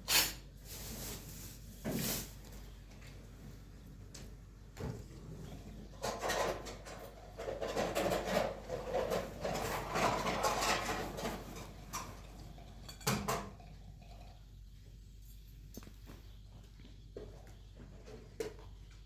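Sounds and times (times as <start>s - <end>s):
dishes and utensils clinking: 6.0s - 14.4s.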